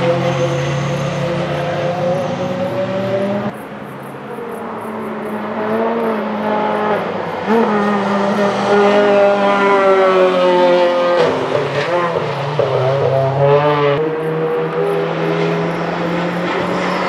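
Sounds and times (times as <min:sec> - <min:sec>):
car engine revving hard: 0:00.0 - 0:03.5, 0:05.5 - 0:17.0.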